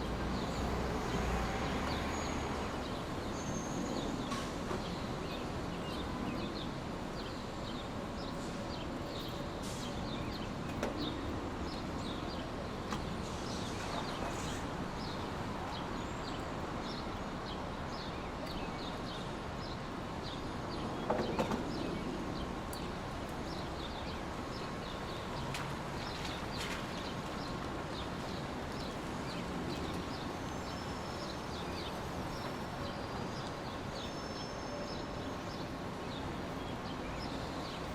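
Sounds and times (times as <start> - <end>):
rustle: 21.7 - 37.9.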